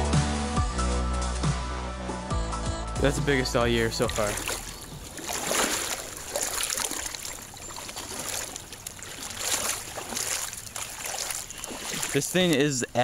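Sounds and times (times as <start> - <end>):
creek water running: 3.0 - 13.0
water splashing: 3.1 - 13.0.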